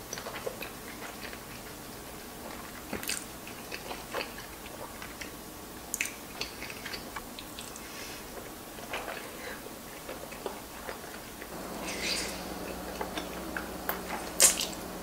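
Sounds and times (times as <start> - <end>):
close wet chewing: 0.0 - 15.0
sharp mouth clicks and smacks: 5.9 - 7.9.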